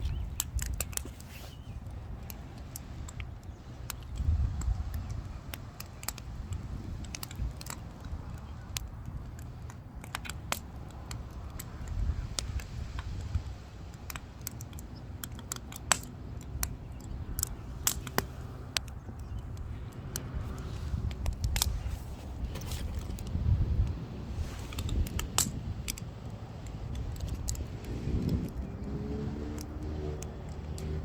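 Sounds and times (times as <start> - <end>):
low fire rumble: 0.0 - 31.0
wood fire crackling and popping: 3.9 - 12.6, 13.2 - 19.0, 22.3 - 28.6.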